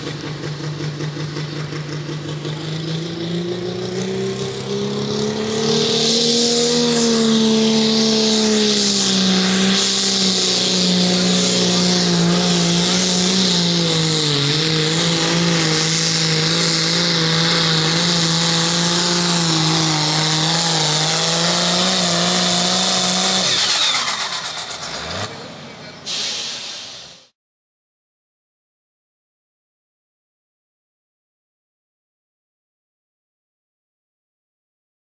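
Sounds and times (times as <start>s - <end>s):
tractor engine running under load: 0.0s - 26.0s.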